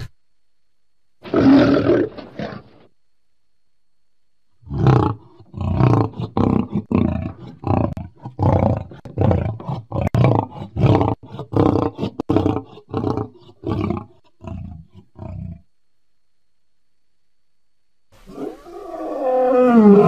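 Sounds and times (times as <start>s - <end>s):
lion roaring: 1.2s - 2.8s, 4.6s - 15.6s, 18.3s - 20.0s.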